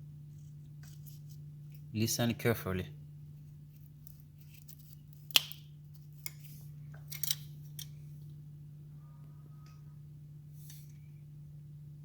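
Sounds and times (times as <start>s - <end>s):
refrigerator humming: 0.0s - 12.0s.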